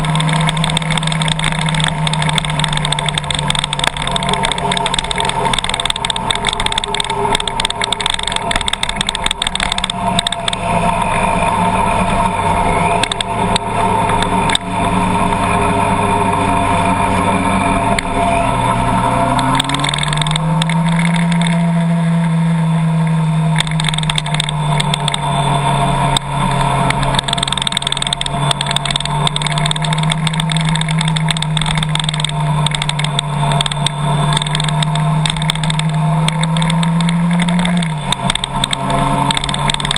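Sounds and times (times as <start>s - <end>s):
small clicks: 0.0s - 11.2s, 13.0s - 14.7s, 19.3s - 22.0s, 23.6s - 25.2s, 26.1s - 39.9s
car engine running: 0.0s - 39.9s.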